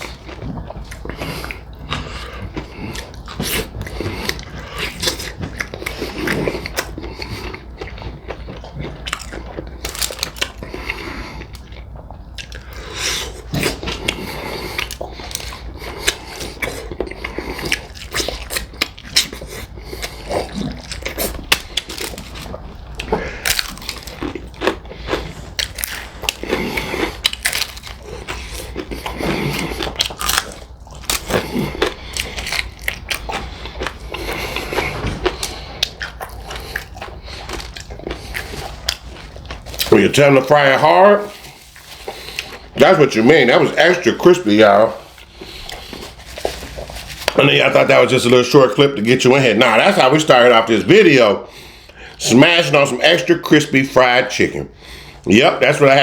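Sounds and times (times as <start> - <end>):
chewing: 0.0 - 40.1, 44.9 - 47.4
crunching fried chicken: 0.0 - 48.4.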